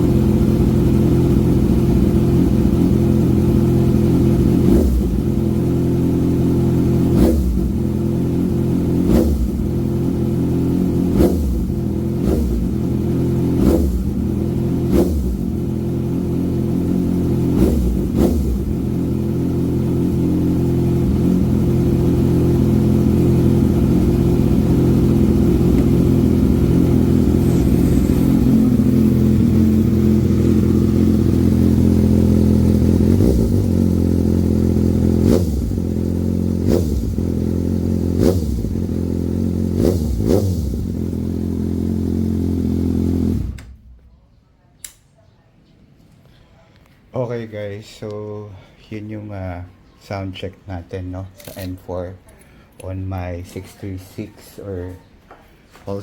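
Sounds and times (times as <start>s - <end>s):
motorcycle engine idling: 0.0s - 44.5s
motorcycle throttle blips: 0.0s - 45.2s.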